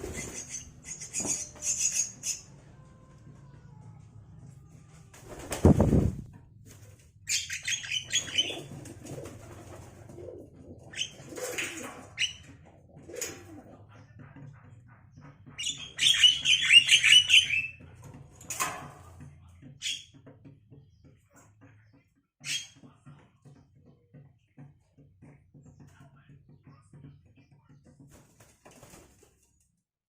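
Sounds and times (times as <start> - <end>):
bird wing flap: 5.1 - 7.0, 8.1 - 10.4, 28.1 - 29.5.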